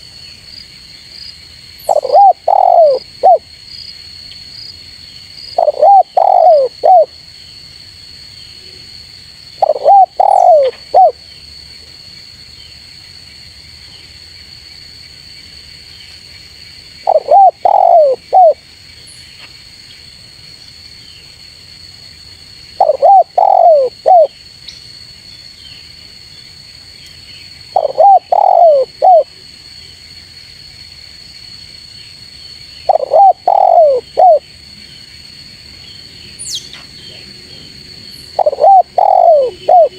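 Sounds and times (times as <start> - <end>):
dove cooing: 1.9 - 3.4, 5.6 - 7.1, 9.6 - 11.2, 17.1 - 18.6, 22.8 - 24.3, 27.8 - 29.3, 32.9 - 34.4, 38.4 - 39.9.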